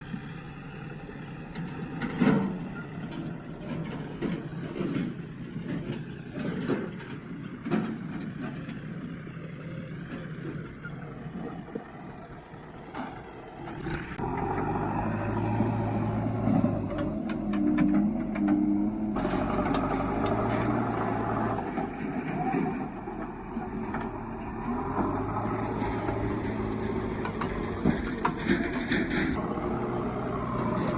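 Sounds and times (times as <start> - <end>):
heavy diesel machinery running: 0.0 - 30.9
knocks and clanks: 1.5 - 9.4, 16.2 - 29.4.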